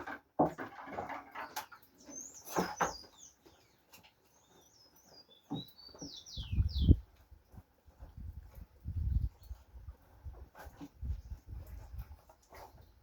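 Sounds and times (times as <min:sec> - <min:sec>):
small bird chirping: 0:01.4 - 0:07.1.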